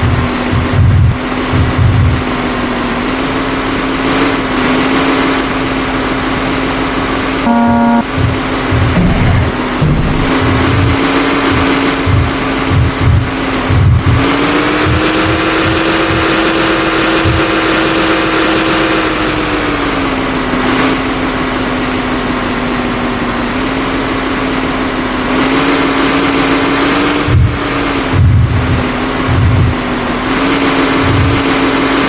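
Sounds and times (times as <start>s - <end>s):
low thumps: 0.0s - 2.6s, 7.5s - 17.9s, 27.3s - 30.1s
machine engine humming: 0.0s - 32.0s.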